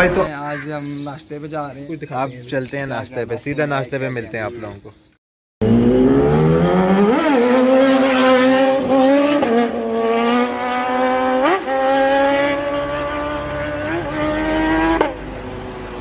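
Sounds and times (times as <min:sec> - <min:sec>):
motorcycle engine accelerating: 0:05.6 - 0:16.0.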